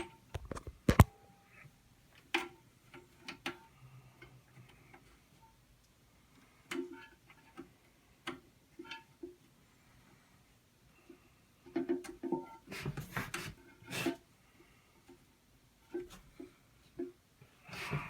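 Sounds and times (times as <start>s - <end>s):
plastic parts clicking and knocking: 0.0s - 1.1s, 11.7s - 13.5s.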